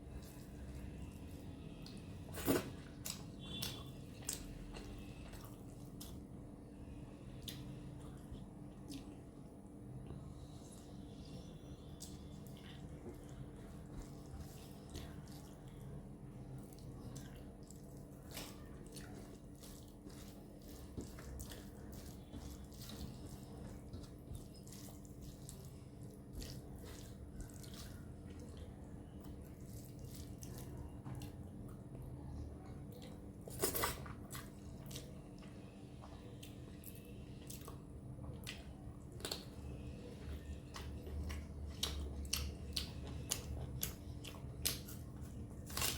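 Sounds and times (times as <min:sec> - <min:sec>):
wet chewing: 0:11.8 - 0:32.1, 0:32.9 - 0:45.9.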